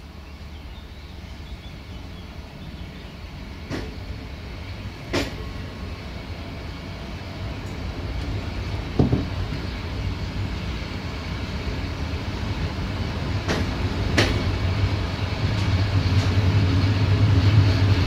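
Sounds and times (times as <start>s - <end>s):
train wheels rumbling on rails: 0.0s - 18.0s
sharp knocks: 9.0s - 9.4s.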